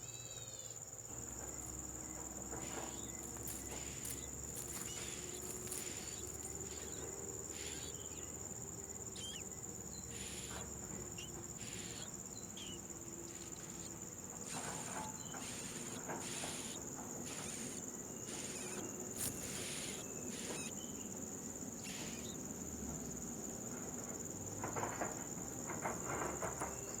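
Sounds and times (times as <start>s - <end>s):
cricket trill: 0.0s - 27.0s
insect pulsing in bursts: 0.1s - 20.8s, 21.7s - 22.5s
rustles and clicks: 1.4s - 7.1s, 19.2s - 19.6s.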